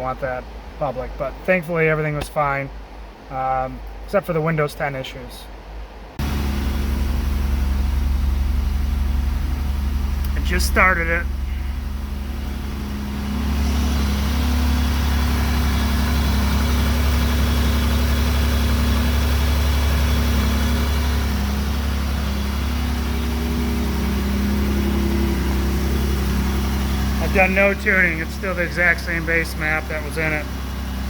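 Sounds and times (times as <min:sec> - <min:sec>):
car engine idling: 0:06.2 - 0:31.0.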